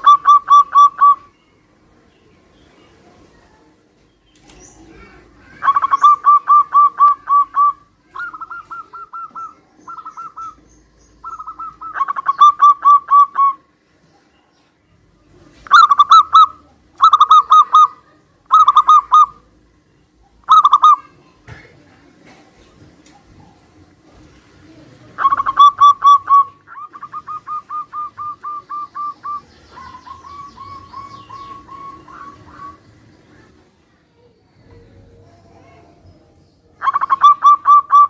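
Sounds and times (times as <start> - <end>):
doves cooing: 0.0 - 1.3, 4.5 - 13.7, 15.6 - 19.6, 20.3 - 21.1, 22.2 - 33.7, 36.8 - 38.0.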